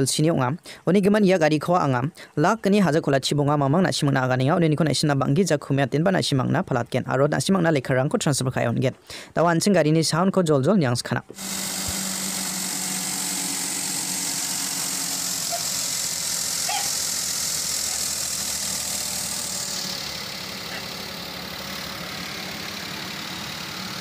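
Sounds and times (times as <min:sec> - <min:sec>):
car engine idling: 0:11.3 - 0:24.0.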